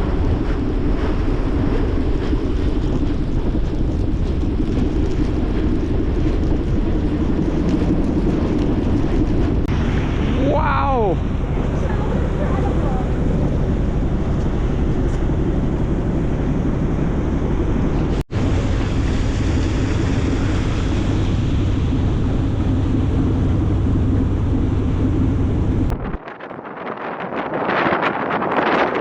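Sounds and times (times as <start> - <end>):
low drone: 0.0 - 26.4
wind blowing across microphone: 0.0 - 29.0.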